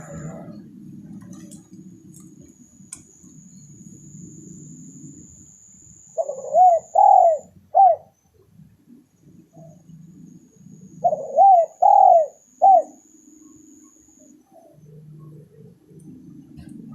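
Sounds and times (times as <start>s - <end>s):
dove cooing: 0.0s - 2.6s, 6.0s - 8.1s, 10.8s - 13.6s.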